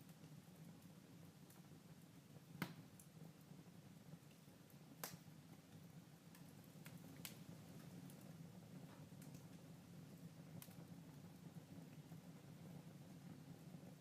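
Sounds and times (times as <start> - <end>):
wood fire crackling: 0.0 - 14.0
sharp pops of fire: 2.4 - 3.3, 5.0 - 12.8.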